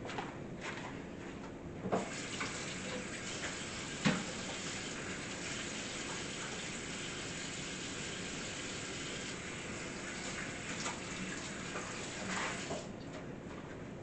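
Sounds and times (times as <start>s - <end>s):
tap running into sink: 1.9s - 4.8s.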